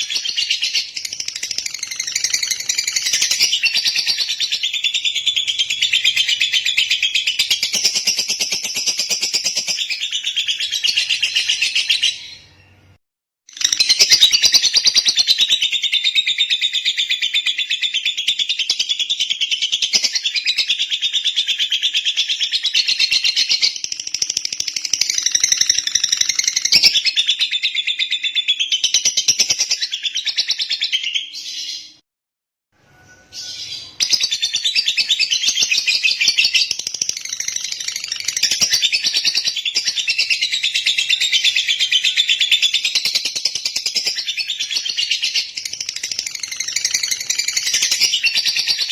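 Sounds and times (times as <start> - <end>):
bird high-pitched chatter: 33.3 - 48.9.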